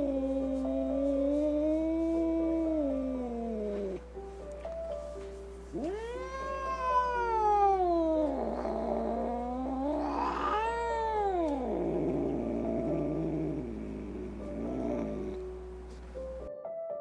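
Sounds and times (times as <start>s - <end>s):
kitten meowing: 5.7s - 13.0s.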